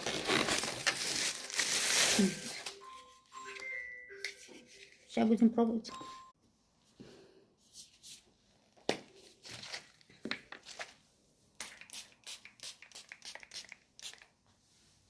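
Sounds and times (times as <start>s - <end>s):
plastic packaging crinkling: 0.0s - 2.8s.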